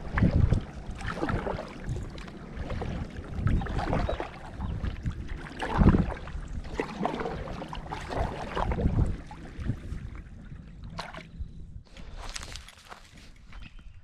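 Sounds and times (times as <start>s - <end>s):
water splashing around kayak: 0.0s - 13.3s.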